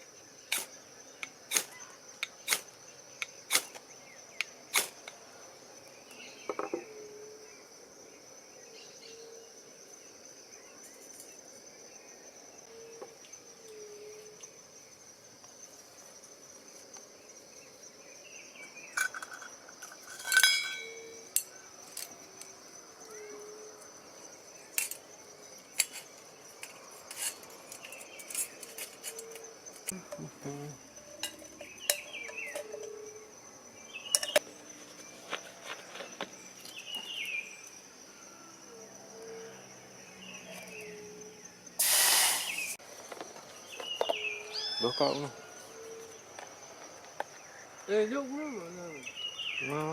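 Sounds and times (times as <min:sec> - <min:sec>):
crickets droning: 0:00.0 - 0:49.9
ringing clink: 0:20.2 - 0:21.2.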